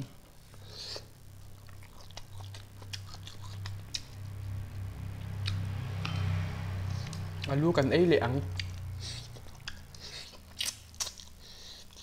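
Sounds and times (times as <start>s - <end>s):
steady low hum: 0.0s - 12.0s
person chewing and smacking: 1.4s - 4.2s, 5.2s - 6.2s, 8.5s - 12.0s.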